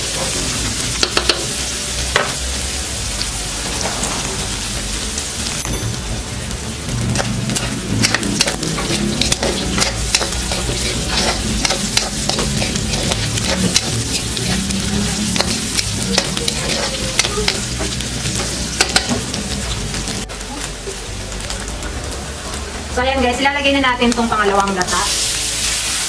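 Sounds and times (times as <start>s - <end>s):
meat sizzling in oil: 0.0s - 26.0s
metal ladle scraping a wok: 7.2s - 19.2s.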